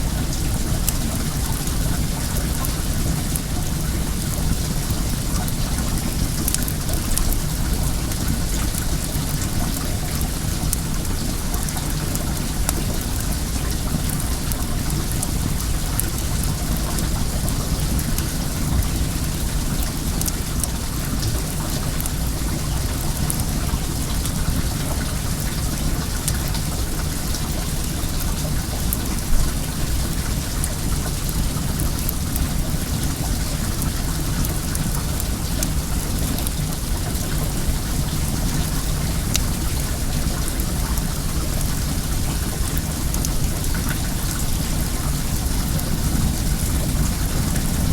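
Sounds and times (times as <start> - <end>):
running water rushing: 0.0 - 47.9
bonfire crackling: 0.1 - 37.8.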